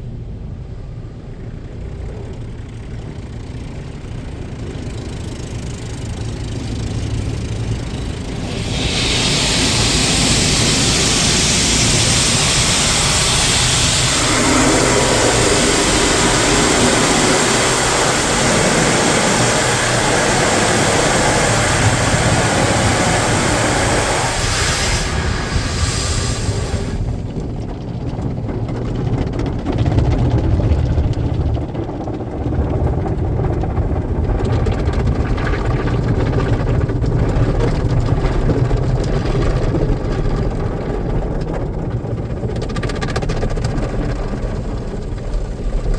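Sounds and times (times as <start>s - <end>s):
car wash machinery rumbling: 0.0s - 45.9s
water spray hissing on car: 5.5s - 27.4s.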